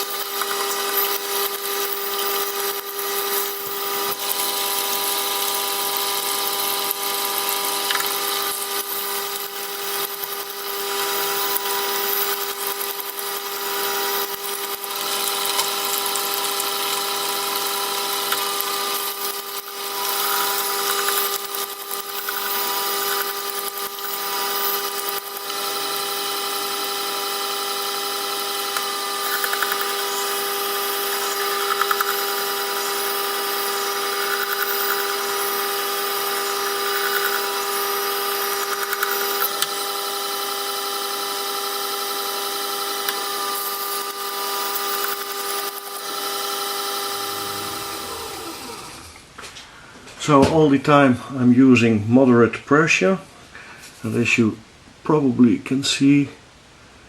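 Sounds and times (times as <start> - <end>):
knife grinding on stone: 0.0 - 39.9
electric motor humming: 0.0 - 49.3.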